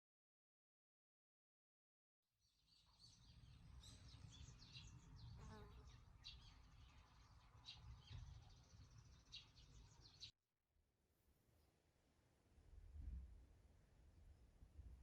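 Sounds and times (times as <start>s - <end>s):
small birds chirping: 2.4s - 10.3s.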